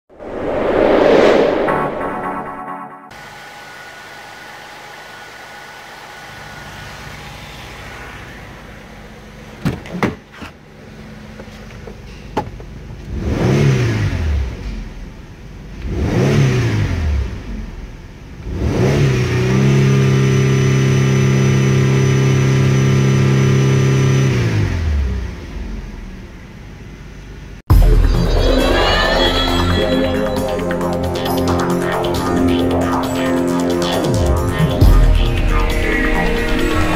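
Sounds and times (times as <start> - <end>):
car engine idling and revving: 3.3 - 28.1.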